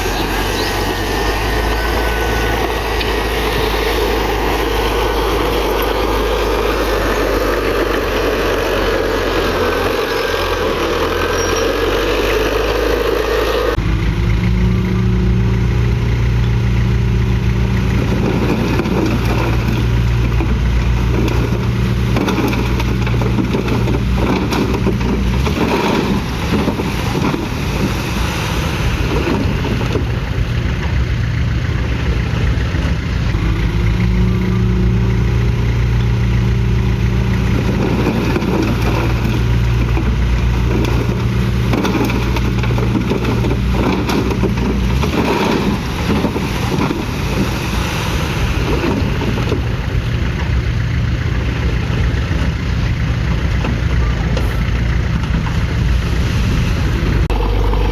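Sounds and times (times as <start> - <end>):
bulldozer diesel engine running: 0.0 - 57.9
knocks and clanks: 17.8 - 28.2, 37.3 - 47.8, 51.6 - 56.5.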